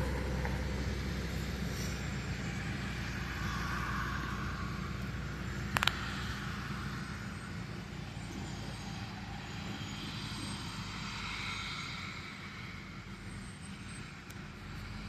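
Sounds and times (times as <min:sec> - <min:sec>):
harvesting machine engine drone: 0:00.0 - 0:15.0
sharp clicks: 0:05.7 - 0:06.0.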